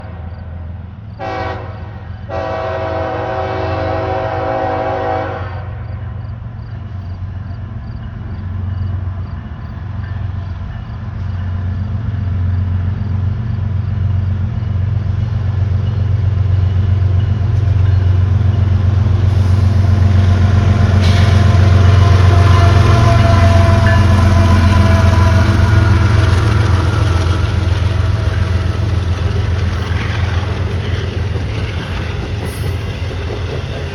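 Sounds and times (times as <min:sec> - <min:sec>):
train rumbling and rolling: 0:00.0 - 0:33.9
locomotive horn blasts: 0:01.2 - 0:05.8, 0:21.0 - 0:28.2.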